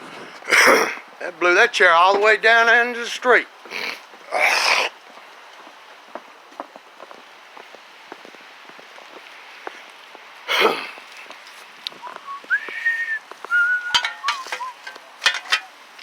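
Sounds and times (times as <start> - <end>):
high sliding whistling tones: 12.0 - 15.2.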